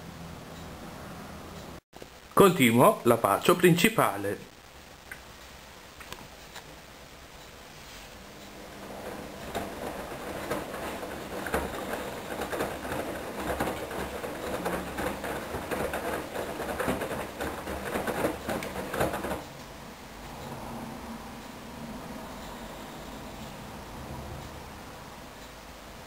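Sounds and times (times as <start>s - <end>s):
washing machine water sloshing: 8.6s - 19.6s
washing machine drum knocks: 8.8s - 19.5s.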